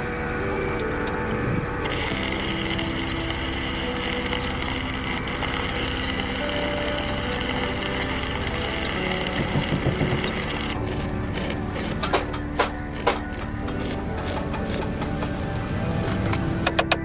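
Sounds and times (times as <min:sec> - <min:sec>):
tool working on metal: 0:00.0 - 0:17.0.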